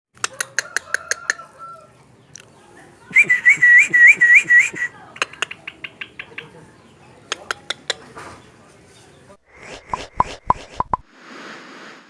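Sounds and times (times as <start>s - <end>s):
bird rising whistled notes: 3.1s - 4.9s
bird sharp clicks: 3.2s - 6.6s, 7.3s - 8.1s.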